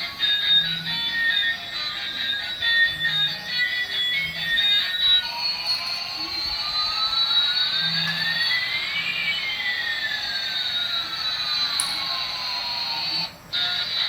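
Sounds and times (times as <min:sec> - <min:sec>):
rising and falling whistling tones: 0:07.2 - 0:11.6.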